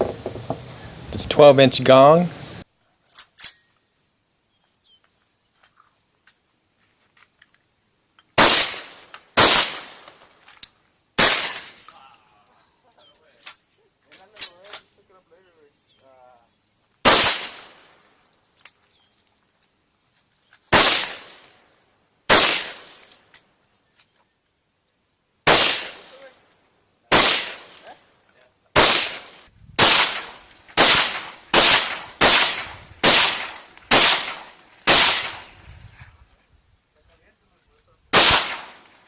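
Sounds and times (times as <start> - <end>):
rifle shots: 8.4 - 10.1, 11.2 - 11.8, 17.0 - 17.9, 20.7 - 21.5, 22.3 - 23.1, 25.4 - 26.3, 27.1 - 27.9, 28.8 - 35.6, 38.1 - 39.0.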